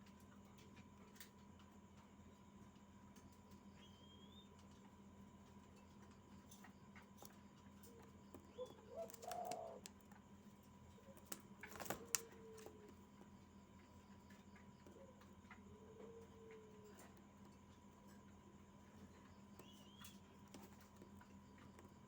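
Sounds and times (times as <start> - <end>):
dove cooing softly: 6.5 - 22.0.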